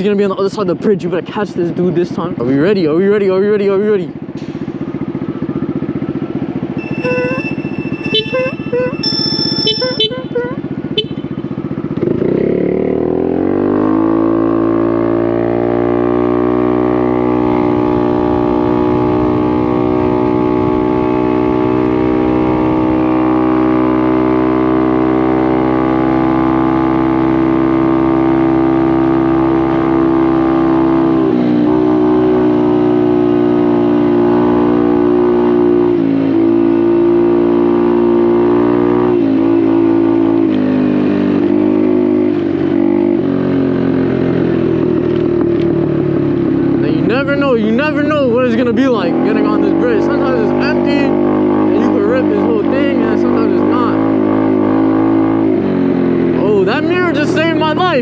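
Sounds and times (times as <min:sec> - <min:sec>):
scooter engine revving: 0:05.0 - 0:29.5.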